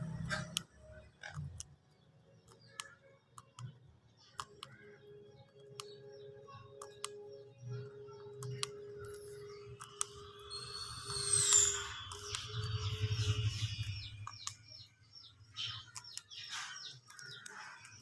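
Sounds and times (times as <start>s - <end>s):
sharp clicks and taps: 2.4s - 3.8s, 4.4s - 4.9s, 8.4s - 10.2s, 13.7s - 14.9s, 15.5s - 18.0s.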